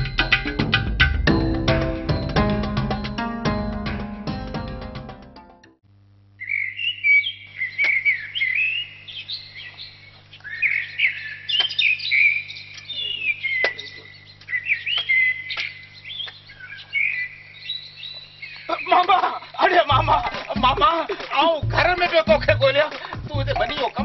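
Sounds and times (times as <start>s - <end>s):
small birds chirping: 6.4s - 24.0s
steady low hum: 12.4s - 24.0s.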